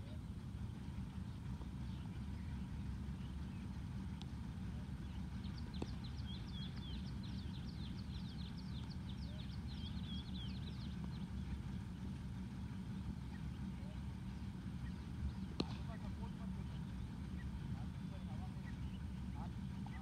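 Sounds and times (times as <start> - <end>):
small bird singing: 0.0 - 4.1, 4.7 - 20.0.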